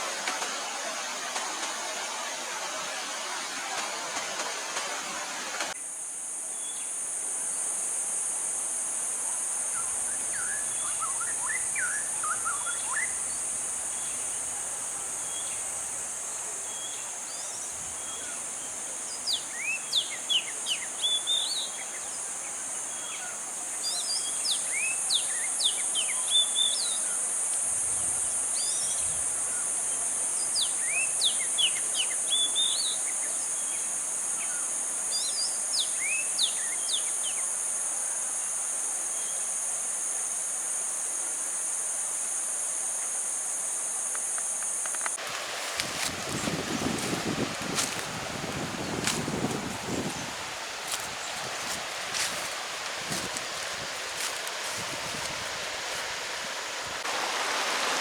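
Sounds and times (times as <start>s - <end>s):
insect chorus drone: 0.0s - 58.0s
birds chirping: 45.2s - 56.2s.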